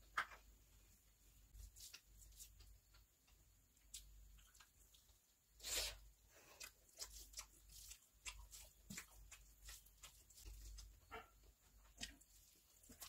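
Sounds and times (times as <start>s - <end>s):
chewing and wet lip-smacking: 6.5s - 11.0s.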